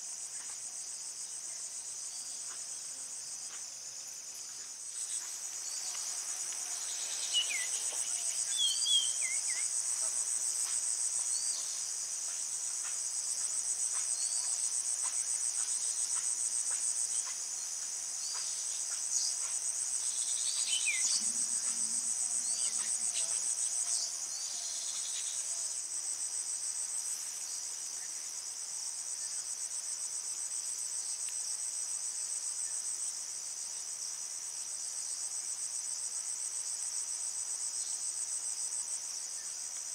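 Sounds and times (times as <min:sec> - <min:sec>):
insect chorus trilling: 0:00.0 - 0:39.9
falling insect chirps: 0:03.5 - 0:09.8, 0:18.3 - 0:25.7.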